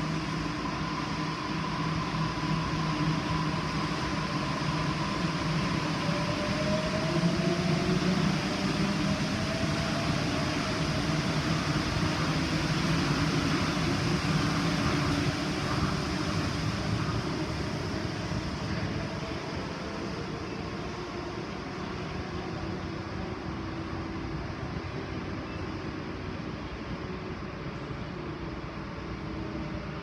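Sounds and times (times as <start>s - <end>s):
electric train running: 0.0s - 20.8s.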